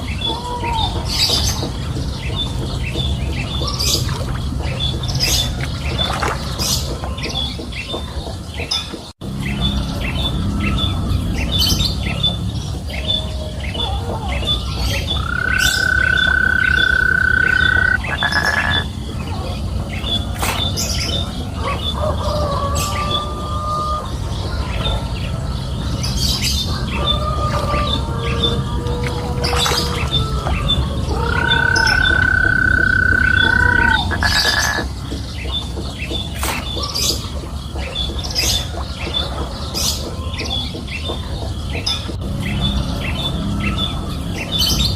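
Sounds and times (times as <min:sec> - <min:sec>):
birds chirping: 0:00.0 - 0:44.9
rapid high ticking: 0:15.1 - 0:18.9.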